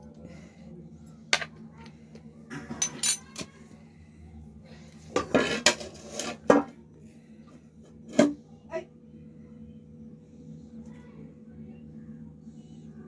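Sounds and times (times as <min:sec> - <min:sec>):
utensil scraping a dish: 0:05.1 - 0:06.7.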